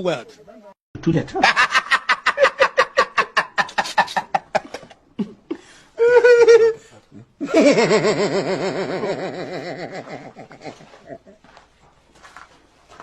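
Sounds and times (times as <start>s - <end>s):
person laughing: 1.4s - 11.5s.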